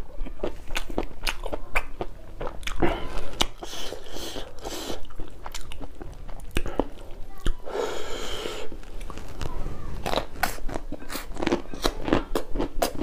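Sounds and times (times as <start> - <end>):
chewing food: 0.0 - 7.7, 8.6 - 13.0.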